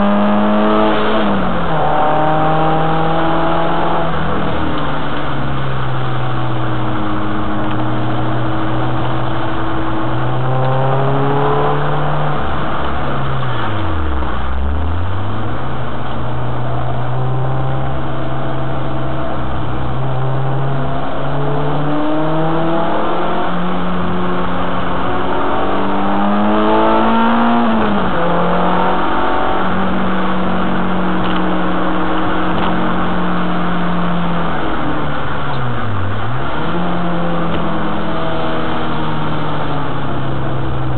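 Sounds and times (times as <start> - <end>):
car engine revving hard: 0.0 - 40.9.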